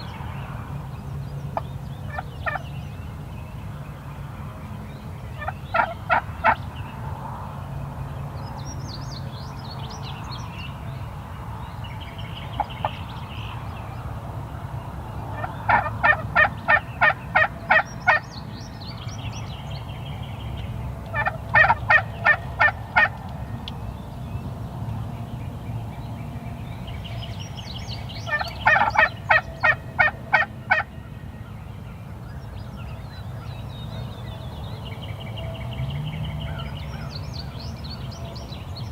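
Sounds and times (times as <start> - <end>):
turkey calling: 2.1 - 2.6, 5.4 - 6.6, 15.4 - 18.2, 21.1 - 23.2, 28.2 - 30.9
songbird twittering: 25.1 - 29.8.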